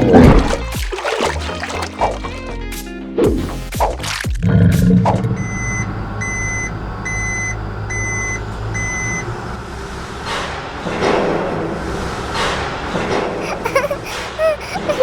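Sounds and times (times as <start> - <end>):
low engine rumble: 5.2 - 13.7
vehicle reversing alarm beeps: 5.3 - 9.5.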